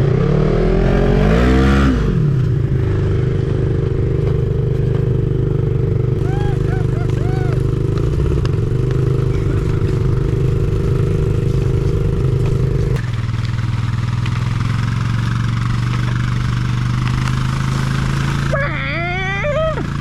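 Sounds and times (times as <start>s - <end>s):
small motorcycle engine running: 0.0s - 20.0s.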